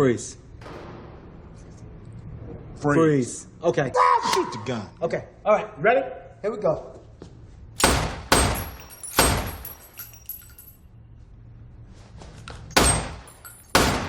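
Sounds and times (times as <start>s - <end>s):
handgun shots: 7.8s - 9.7s, 12.8s - 14.0s.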